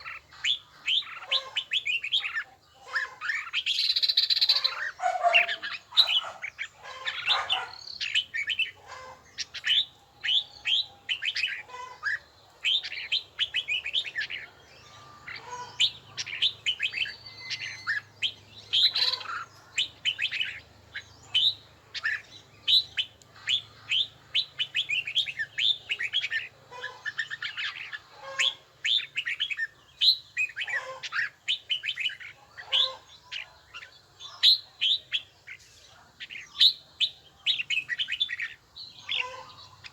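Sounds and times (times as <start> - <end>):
bird singing whistled notes: 15.7 - 26.5.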